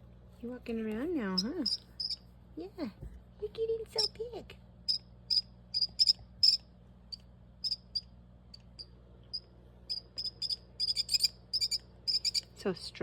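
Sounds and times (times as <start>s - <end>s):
baby bird cheeping: 1.2s - 2.2s, 4.9s - 12.6s.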